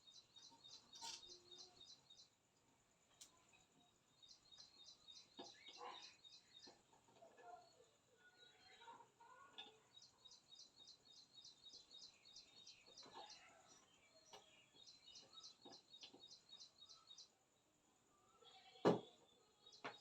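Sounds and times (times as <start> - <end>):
faint bird chirping: 0.0 - 20.0.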